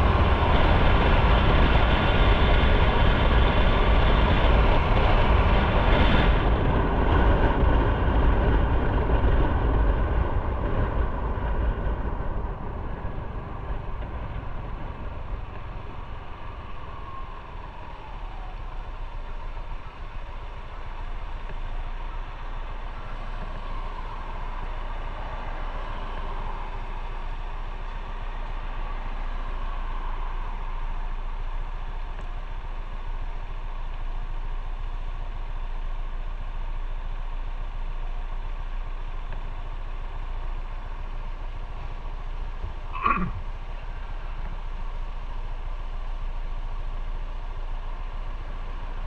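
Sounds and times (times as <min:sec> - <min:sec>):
wind noise: 0:00.0 - 0:28.1.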